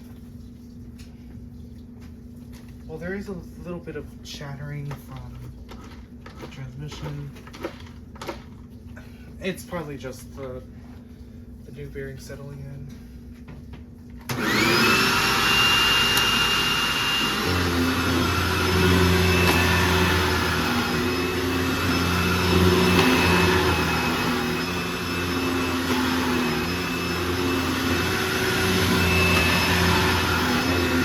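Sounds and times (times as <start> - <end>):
vacuum cleaner motor whine: 14.2 - 31.0.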